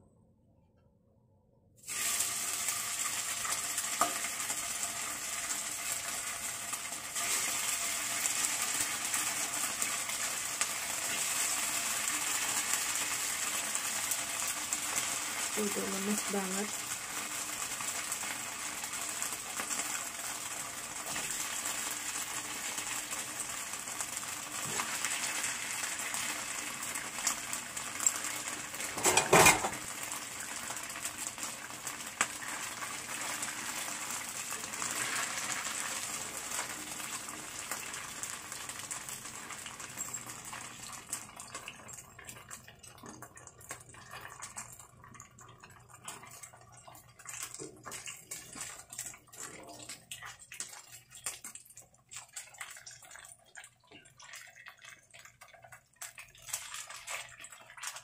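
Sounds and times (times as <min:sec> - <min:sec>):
food sizzling in hot oil: 0:01.8 - 0:54.2
utensil clattering against pan: 0:28.9 - 0:29.8.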